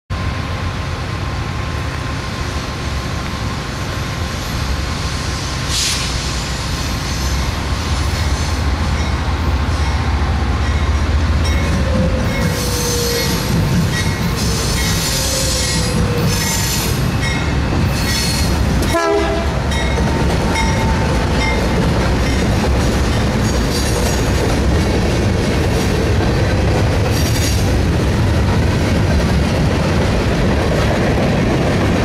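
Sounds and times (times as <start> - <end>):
diesel locomotive throb: 0.1 - 32.0
short hiss: 5.6 - 6.8
wheel flanges squealing: 6.9 - 18.6.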